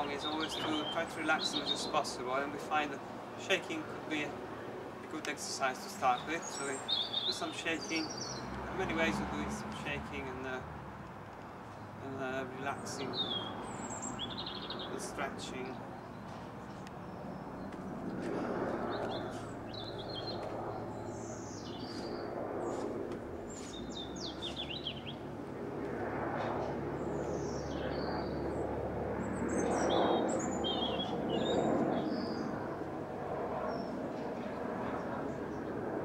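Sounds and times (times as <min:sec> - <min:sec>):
small birds chirping: 0:00.0 - 0:02.4, 0:05.2 - 0:10.6, 0:11.7 - 0:25.3, 0:27.0 - 0:28.6, 0:29.3 - 0:32.8.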